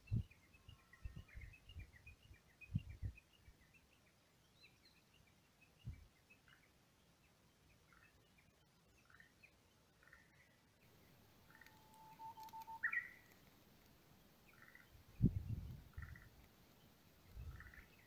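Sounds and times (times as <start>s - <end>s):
bird chirps: 0.0s - 13.5s, 14.1s - 18.0s
rising and falling bird call: 11.4s - 13.4s
long whistled bird note: 11.8s - 13.2s.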